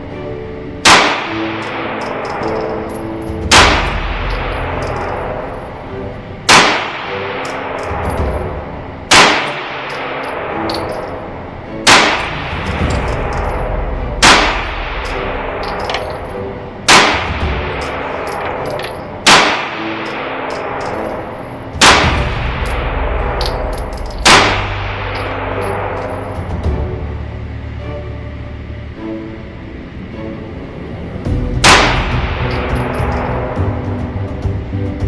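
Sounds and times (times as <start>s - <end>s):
pistol shots with echo: 0.9s - 2.8s, 6.5s - 11.1s, 16.9s - 21.2s.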